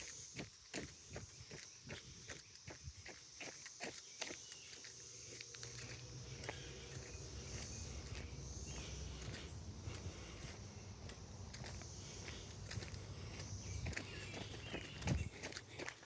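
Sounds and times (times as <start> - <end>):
footsteps on a trail: 0.0 - 16.0
insects buzzing: 0.0 - 16.0.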